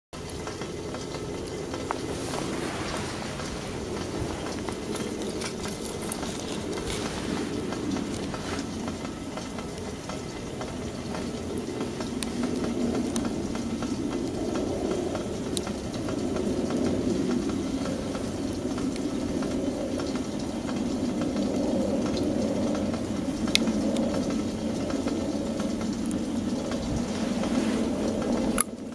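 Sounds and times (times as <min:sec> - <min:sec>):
burning wood crackling: 0:00.2 - 0:28.9
flame rushing: 0:01.4 - 0:14.4, 0:26.0 - 0:28.7.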